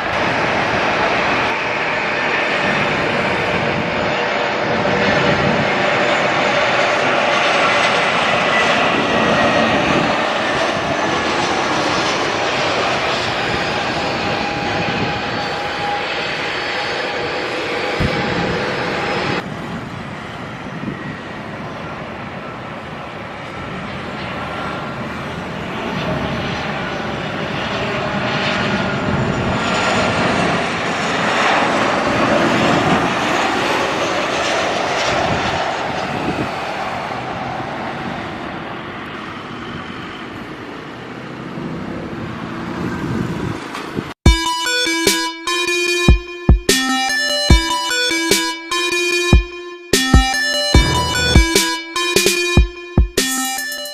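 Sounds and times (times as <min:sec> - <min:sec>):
jet engines passing: 0:00.0 - 0:44.2
electronic music: 0:44.3 - 0:53.9.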